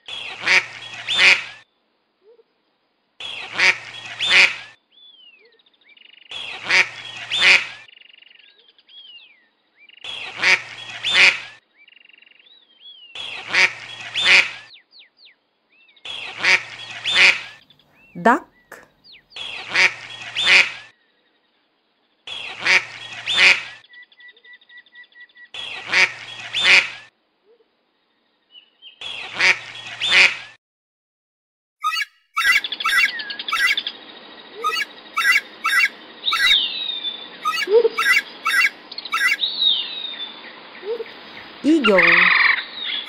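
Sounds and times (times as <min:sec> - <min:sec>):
duck quacking: 0:00.4 - 0:01.5, 0:06.6 - 0:07.8, 0:10.4 - 0:11.4, 0:13.5 - 0:14.6, 0:16.4 - 0:17.5, 0:22.6 - 0:23.7, 0:25.9 - 0:26.9, 0:29.4 - 0:30.4, 0:31.8 - 0:33.9, 0:34.6 - 0:36.7, 0:37.4 - 0:39.4
faint high peeping: 0:31.8 - 0:33.9, 0:34.6 - 0:36.7, 0:37.4 - 0:39.5
bird chirps and screechy cries: 0:31.8 - 0:34.0, 0:34.6 - 0:43.0.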